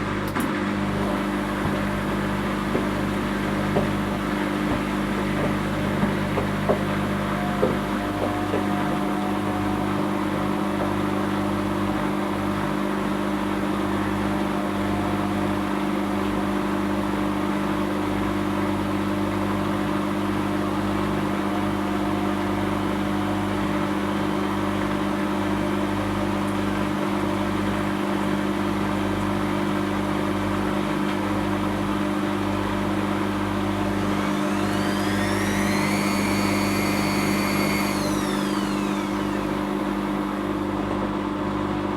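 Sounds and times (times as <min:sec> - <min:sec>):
washing machine motor hum: 0:00.0 - 0:41.9
spinning drum whine: 0:33.5 - 0:40.8.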